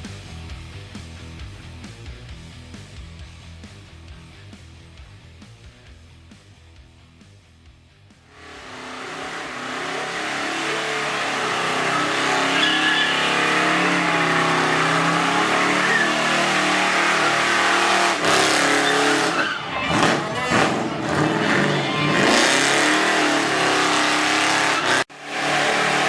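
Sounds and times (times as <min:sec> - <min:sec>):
car engine at high revs: 0:08.3 - 0:26.0
tyres squealing: 0:09.0 - 0:25.1.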